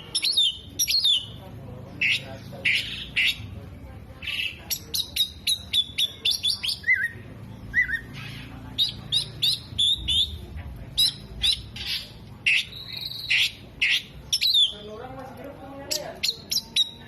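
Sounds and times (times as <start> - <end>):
bird chirping: 0.0 - 15.0, 15.7 - 17.0
bird warbled whistles: 8.8 - 10.4.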